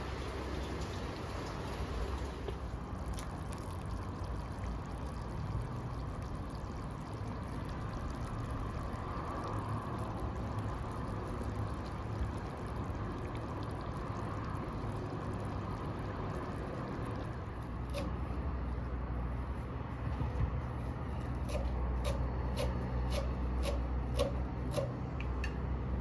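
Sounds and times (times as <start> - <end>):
steady rain: 0.0 - 17.8.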